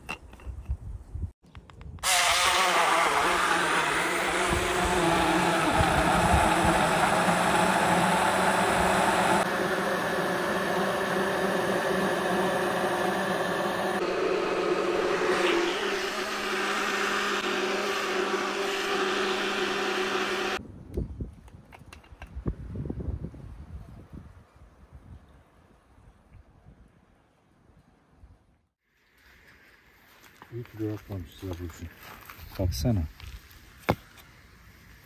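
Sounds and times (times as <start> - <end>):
vehicle engine running: 3.3 - 20.6.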